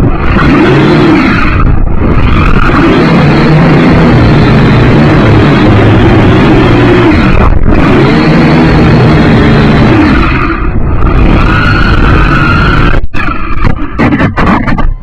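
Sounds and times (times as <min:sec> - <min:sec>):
quadcopter propellers whirring: 0:00.0 - 0:14.7
wind noise: 0:00.0 - 0:15.0.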